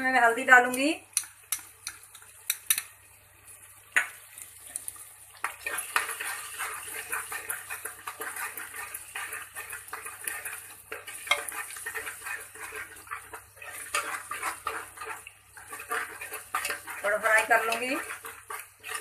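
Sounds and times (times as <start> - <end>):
light sizzle: 0.0 - 19.0
metal spoon scraping a pan: 5.4 - 19.0.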